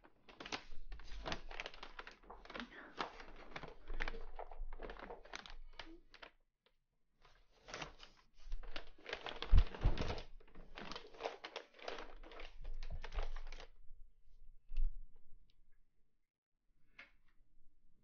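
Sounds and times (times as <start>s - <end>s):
close rustling and crinkling: 0.0s - 6.4s, 7.2s - 13.8s.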